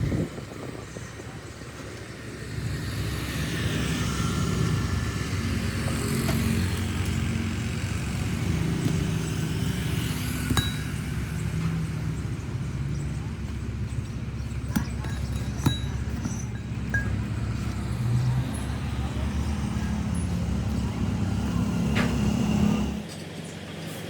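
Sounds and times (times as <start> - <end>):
motor rumbling: 0.0 - 23.2.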